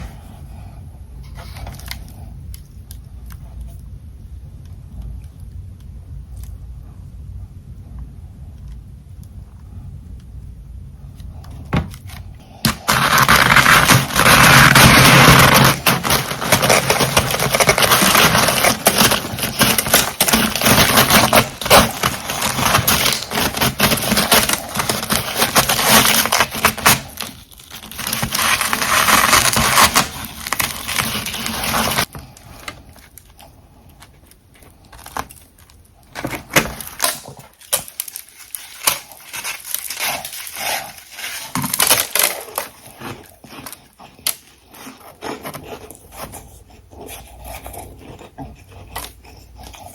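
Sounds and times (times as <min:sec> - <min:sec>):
crunching ice while chewing: 0:12.7 - 0:49.9.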